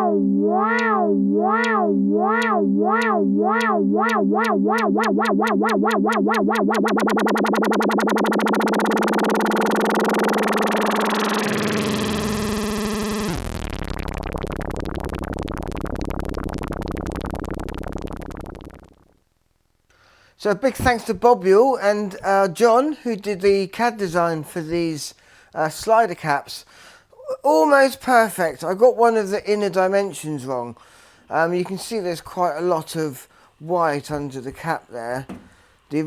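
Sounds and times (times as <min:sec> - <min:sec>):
synthesizer tones wobbling in pitch: 0:00.0 - 0:19.2.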